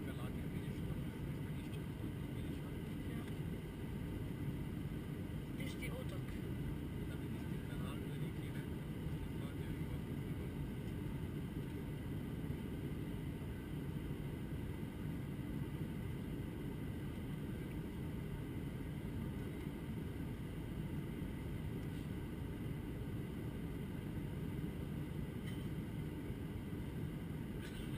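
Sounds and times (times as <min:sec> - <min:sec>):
jet engines roaring in cabin: 0:00.0 - 0:27.9.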